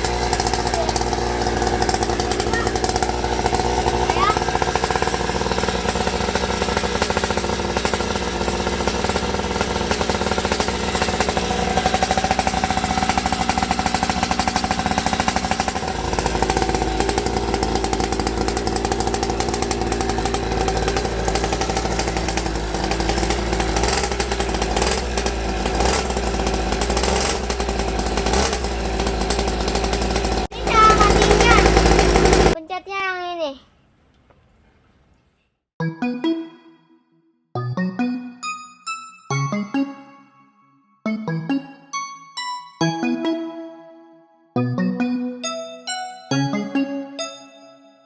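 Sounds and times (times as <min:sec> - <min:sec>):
two-stroke engine running: 0:00.0 - 0:32.6.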